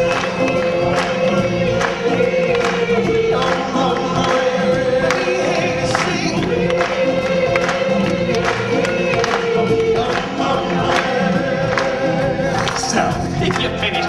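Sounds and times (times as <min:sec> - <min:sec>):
band music: 0:00.0 - 0:14.0
choir singing: 0:00.0 - 0:14.0
steady drum beat: 0:00.0 - 0:14.0.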